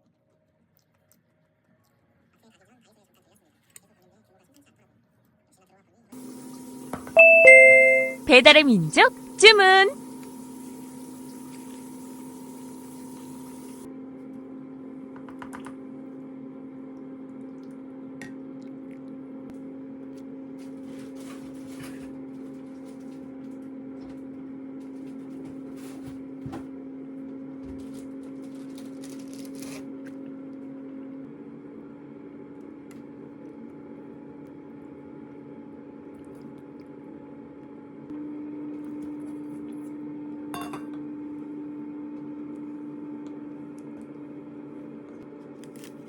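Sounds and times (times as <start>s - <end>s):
kitchen appliance electrical hum: 6.2s - 46.0s.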